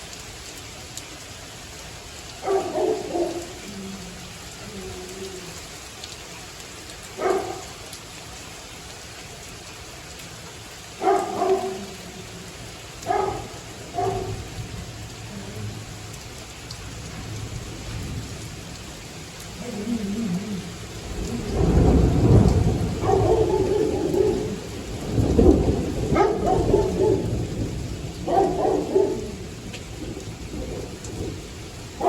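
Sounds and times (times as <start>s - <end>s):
steady rain: 0.0s - 32.0s
low thunder rumble: 13.0s - 16.0s, 17.0s - 32.0s.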